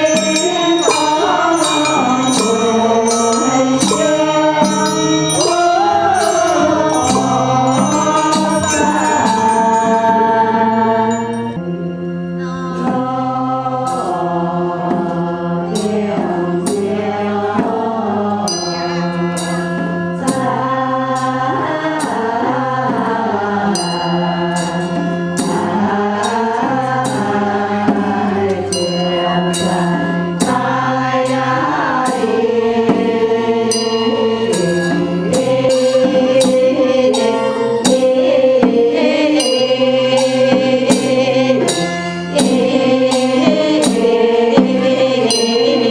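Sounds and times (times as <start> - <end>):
voice chanting: 0.0 - 13.8, 31.6 - 45.9
held chords: 0.0 - 45.9
sharp percussion strikes: 0.0 - 45.9.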